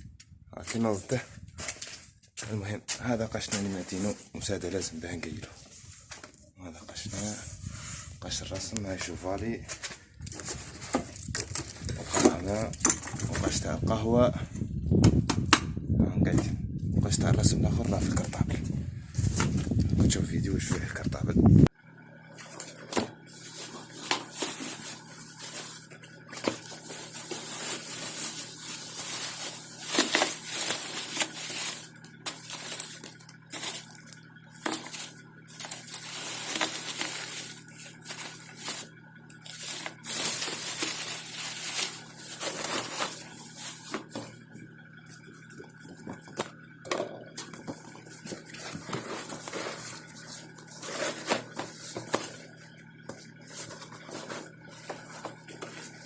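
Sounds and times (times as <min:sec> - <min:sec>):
knocks and crinkles: 0:09.0 - 0:13.6, 0:22.4 - 0:56.0
rustling of gear: 0:22.4 - 0:46.7.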